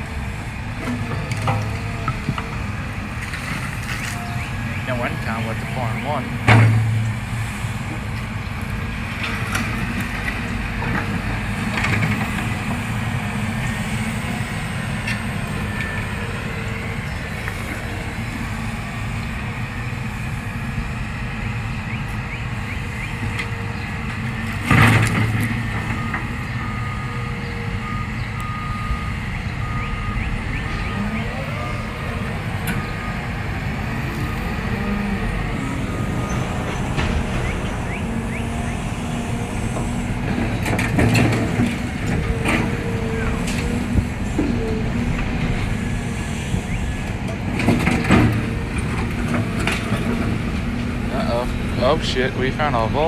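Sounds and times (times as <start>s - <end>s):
diesel engine running: 0.0s - 53.0s
backup alarm beeping: 4.0s - 8.4s, 24.7s - 41.6s.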